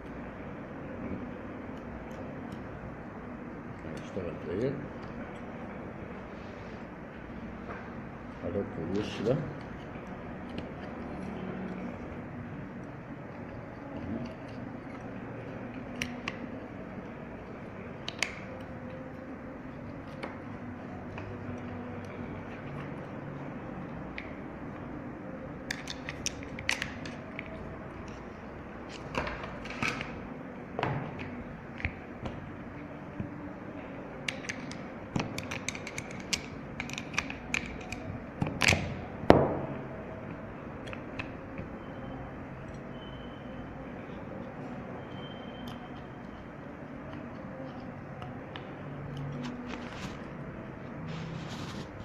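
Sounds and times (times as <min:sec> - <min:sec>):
steady background noise: 0:00.0 - 0:52.0
metal lock parts clicking: 0:34.2 - 0:39.0.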